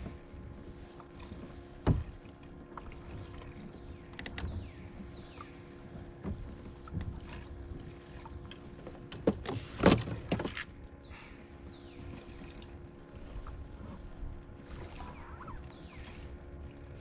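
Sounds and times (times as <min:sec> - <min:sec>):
knocking on boat: 0:01.8 - 0:02.3
faint steady hum: 0:10.2 - 0:17.0
water splashing: 0:12.0 - 0:17.0.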